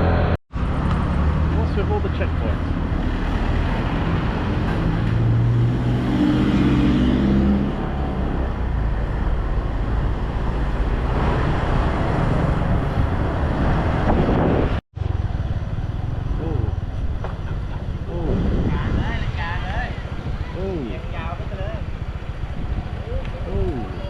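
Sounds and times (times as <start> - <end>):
road and wind noise: 0.0 - 24.0.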